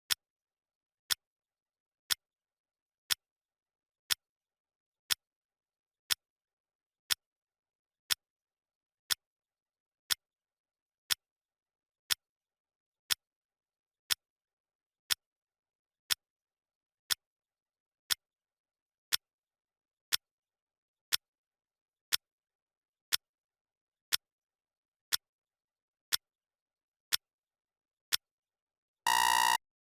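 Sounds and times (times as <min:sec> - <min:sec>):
clock ticking: 0:29.1 - 0:29.6
electronic alarm beep: 0:29.1 - 0:29.6.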